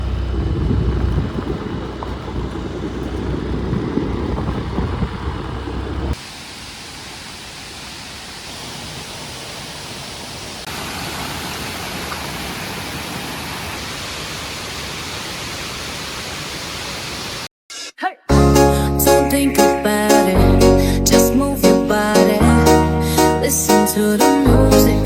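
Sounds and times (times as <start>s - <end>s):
loud low rumble: 0.0s - 6.2s
waterfall rushing hiss: 6.2s - 17.5s.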